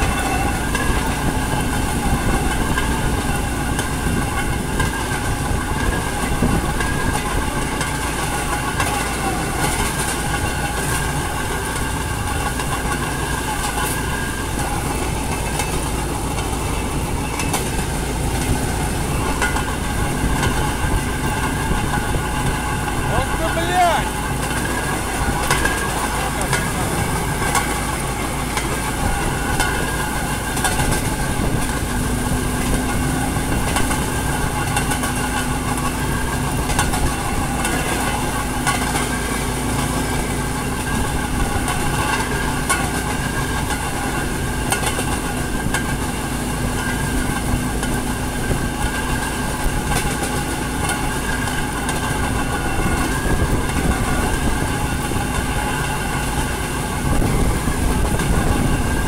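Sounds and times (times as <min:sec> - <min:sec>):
rail vehicle engine hum: 0:00.0 - 0:59.0
wheels clacking over rail joints: 0:00.0 - 0:59.0.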